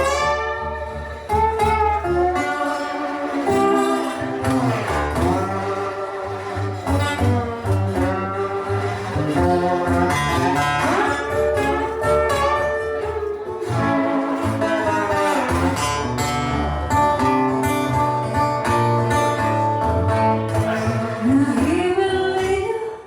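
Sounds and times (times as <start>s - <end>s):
blues lead guitar solo: 0.0s - 21.6s
steady bass line: 0.0s - 22.0s.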